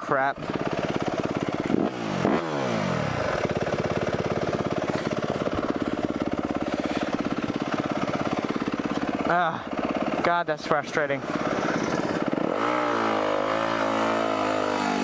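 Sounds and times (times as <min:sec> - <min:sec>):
dirt bike engine revving and idling: 0:00.0 - 0:15.0.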